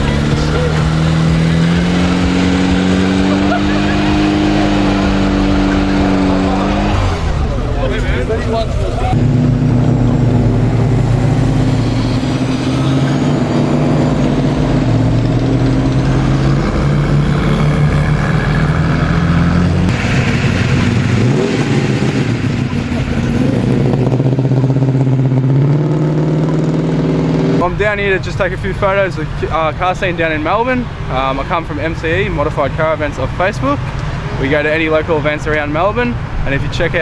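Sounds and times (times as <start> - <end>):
car engines idling and revving: 0.0 - 37.0.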